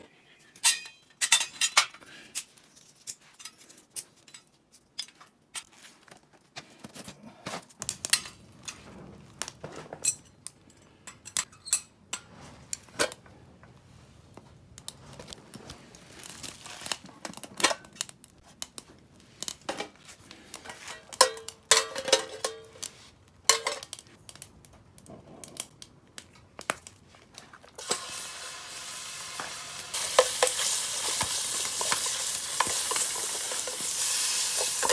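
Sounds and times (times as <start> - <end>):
wrappers tearing and crinkling: 15.8 - 17.6
metal cookware knocks and clinks: 21.2 - 22.7
food sizzling in a pan: 27.8 - 34.9.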